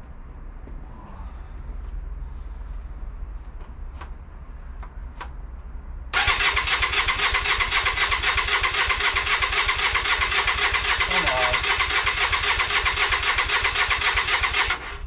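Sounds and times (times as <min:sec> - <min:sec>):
motorcycle engine cranking: 0:06.2 - 0:15.0.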